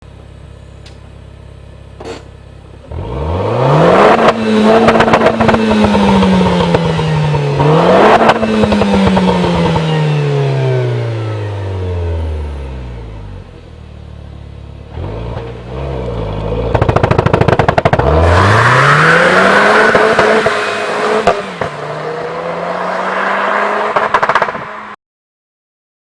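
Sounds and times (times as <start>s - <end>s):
car engine idling and revving: 0.0s - 25.0s
exhaust crackles: 12.8s - 25.0s.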